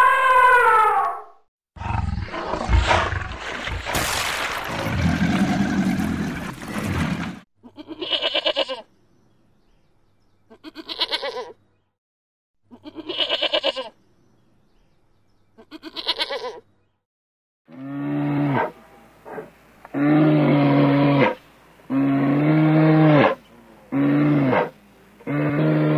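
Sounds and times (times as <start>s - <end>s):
crocodile growling: 1.8s - 3.7s, 4.6s - 7.4s
goat bleating: 7.6s - 8.9s, 10.5s - 11.6s, 12.7s - 14.0s, 15.6s - 16.6s
low drawn-out animal call: 17.7s - 25.9s.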